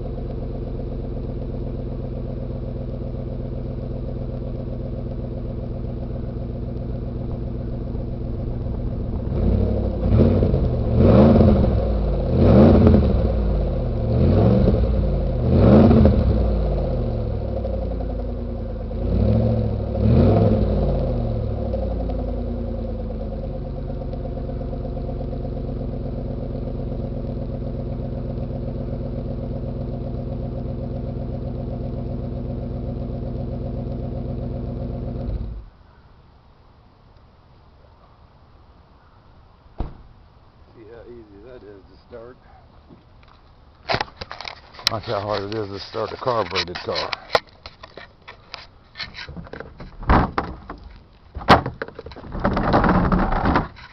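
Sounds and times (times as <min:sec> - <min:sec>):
car engine idling: 0:00.0 - 0:53.9
engine revving in quick blips: 0:03.1 - 0:35.7.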